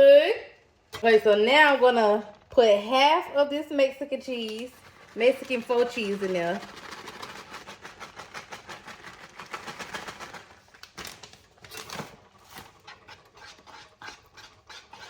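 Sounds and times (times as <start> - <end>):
spoon scraping in a pot: 12.3 - 15.0.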